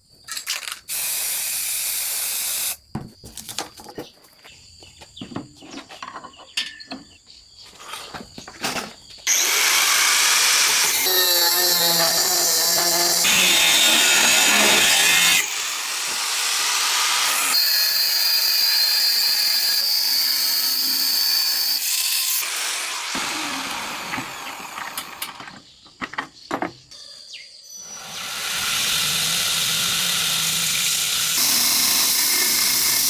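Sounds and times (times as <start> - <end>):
power grinder on steel blade: 9.3 - 25.4, 27.9 - 33.0.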